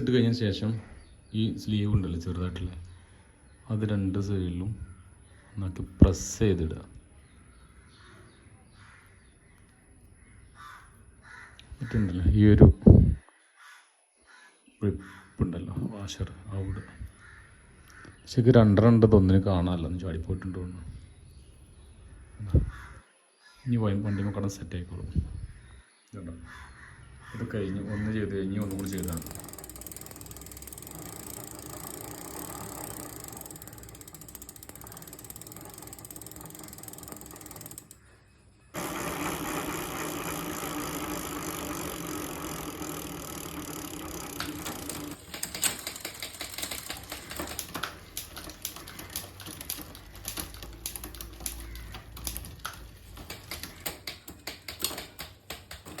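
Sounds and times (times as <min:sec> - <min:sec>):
bike chain running through wheels: 0:28.6 - 0:38.0, 0:38.8 - 0:56.0
freewheel ratchet clicking: 0:28.6 - 0:38.0, 0:38.8 - 0:56.0.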